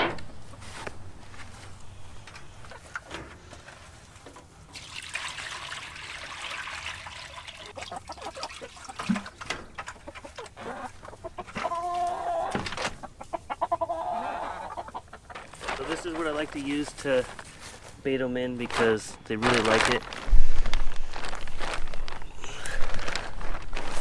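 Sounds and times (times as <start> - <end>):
chickens clucking: 0.0 - 4.7, 7.6 - 24.0
rustling: 0.0 - 4.7, 9.4 - 24.0.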